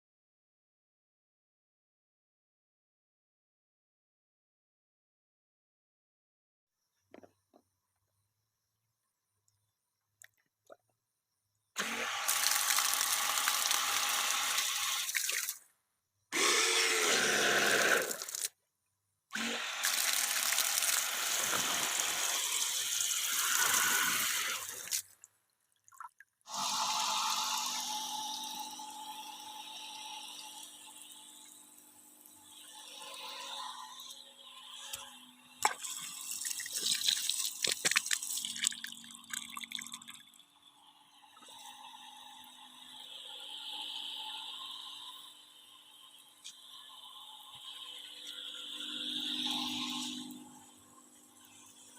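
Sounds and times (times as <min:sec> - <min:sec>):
water gushing from pump: 0:11.8 - 0:15.6, 0:16.4 - 0:18.5, 0:19.4 - 0:25.1, 0:35.6 - 0:40.2.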